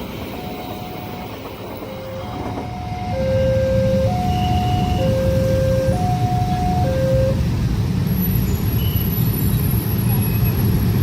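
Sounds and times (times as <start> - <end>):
passing train rumble: 0.0 - 11.0
level crossing warning alarm: 0.4 - 7.4.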